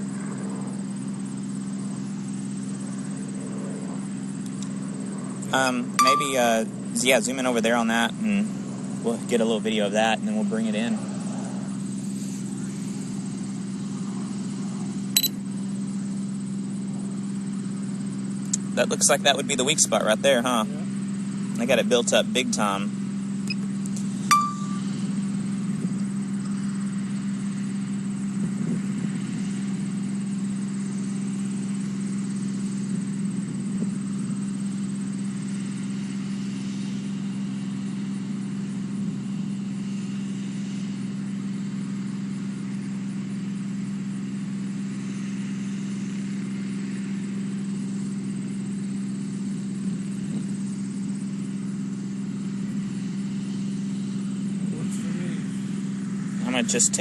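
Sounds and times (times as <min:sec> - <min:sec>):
steady mechanical hum: 0:00.0 - 0:57.0
brief high beep: 0:06.0 - 0:06.5, 0:24.3 - 0:25.0.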